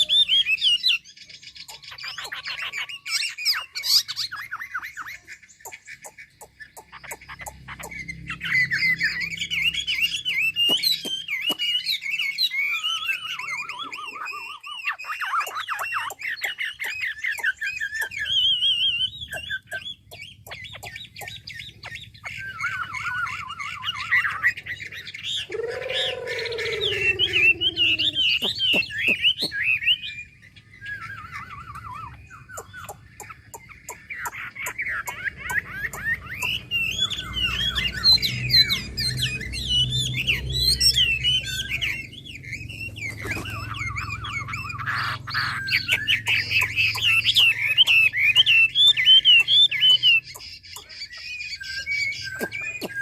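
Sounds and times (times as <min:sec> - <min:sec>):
bird singing whistled phrases: 0:00.0 - 0:53.0
lower falling bird call: 0:25.2 - 0:30.1.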